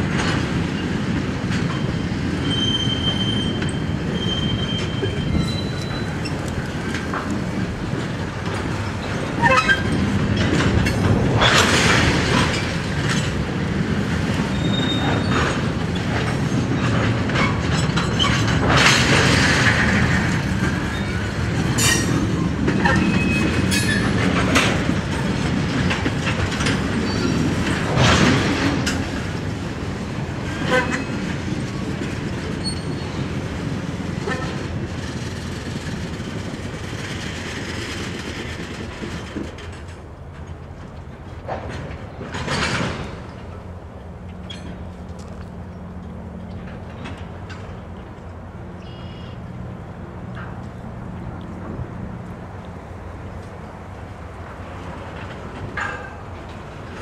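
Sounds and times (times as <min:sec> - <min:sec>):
clickety-clack over rail joints: 0:00.0 - 0:57.0
train wheels rumbling on rail: 0:00.0 - 0:57.0
metallic squeals and clanks: 0:01.7 - 0:06.5, 0:09.0 - 0:10.6, 0:14.5 - 0:19.4, 0:20.7 - 0:24.8, 0:27.0 - 0:28.1, 0:32.5 - 0:33.3, 0:44.3 - 0:44.9.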